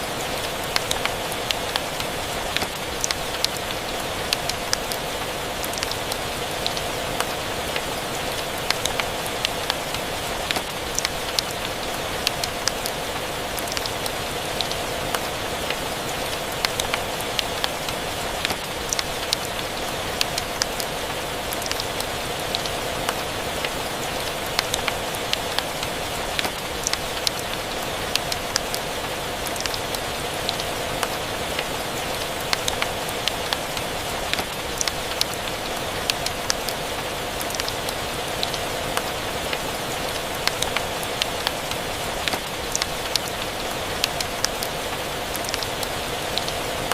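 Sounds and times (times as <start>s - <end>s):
steady rain: 0.0s - 46.9s.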